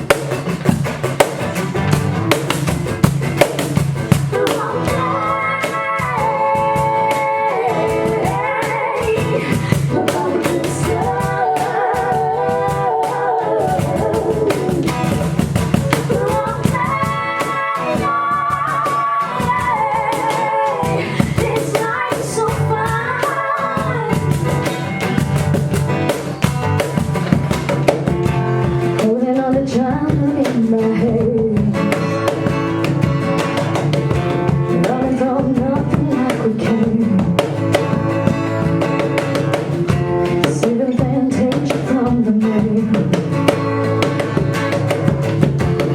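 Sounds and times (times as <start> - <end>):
strummed guitar: 0.0 - 45.9
person singing: 4.3 - 15.1, 15.8 - 25.0, 39.8 - 43.1.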